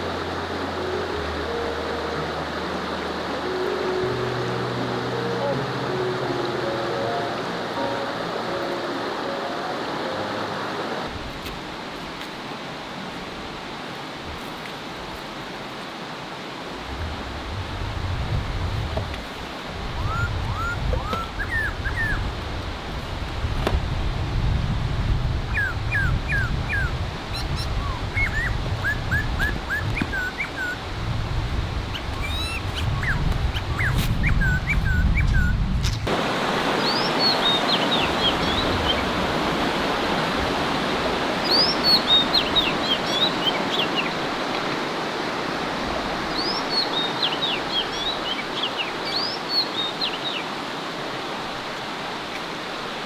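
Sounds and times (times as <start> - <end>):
flowing water rushing: 0.0 - 53.0
low outdoor rumble: 16.8 - 19.3
small birds chirping: 31.9 - 35.6, 36.7 - 39.2, 41.4 - 44.3.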